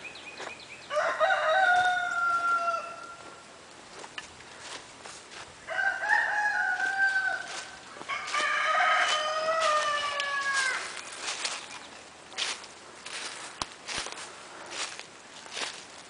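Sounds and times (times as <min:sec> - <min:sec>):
roosters crowing: 0:00.8 - 0:03.5, 0:05.3 - 0:11.8.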